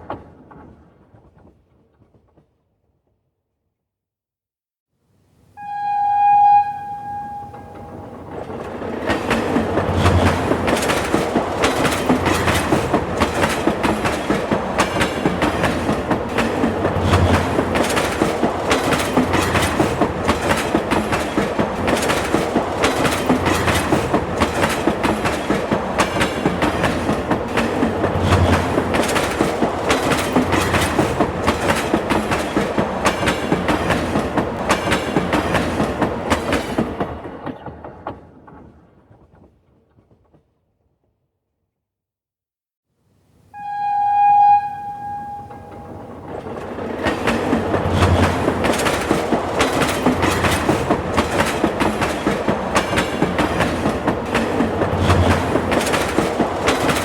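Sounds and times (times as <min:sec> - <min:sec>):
train wheels clattering on rails: 0:00.0 - 0:02.6, 0:07.2 - 0:40.6, 0:45.2 - 0:57.0
train horn: 0:05.6 - 0:08.3, 0:43.6 - 0:46.2.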